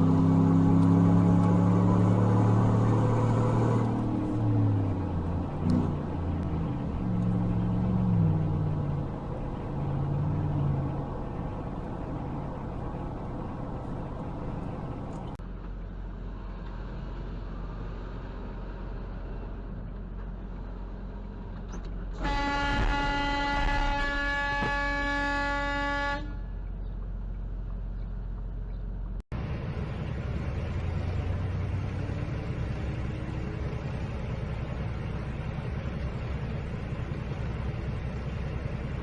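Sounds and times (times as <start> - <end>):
cars in traffic: 0.0 - 39.0
car horn long blast: 22.2 - 26.5.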